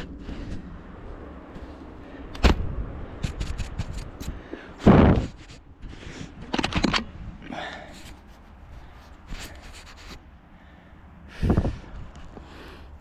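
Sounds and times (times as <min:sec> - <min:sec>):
snow crunching against microphone: 0:00.0 - 0:06.5, 0:07.1 - 0:10.4
sharp thud: 0:02.4 - 0:04.0.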